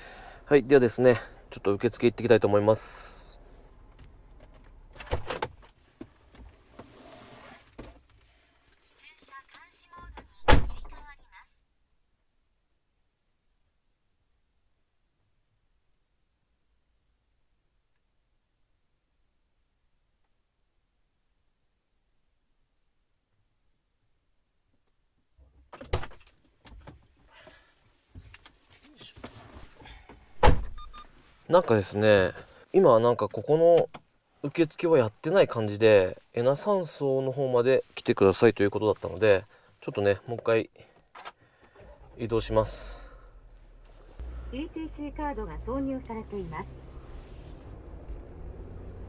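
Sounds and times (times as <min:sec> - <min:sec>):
rustling: 0:46.0 - 0:48.4.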